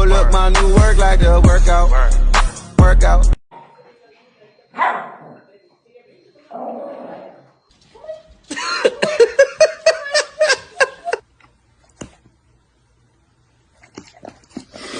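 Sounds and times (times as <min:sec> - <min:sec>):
person laughing: 0:08.5 - 0:11.2.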